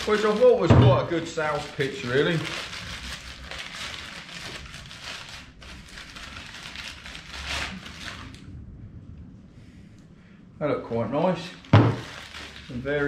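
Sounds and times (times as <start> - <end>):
packaging rustling and crinkling: 0.0 - 8.4, 11.6 - 13.0.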